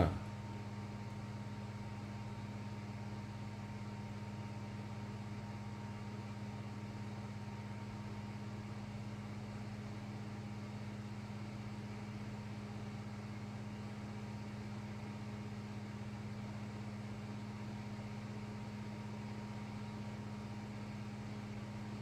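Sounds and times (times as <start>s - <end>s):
low electrical hum: 0.0s - 0.3s.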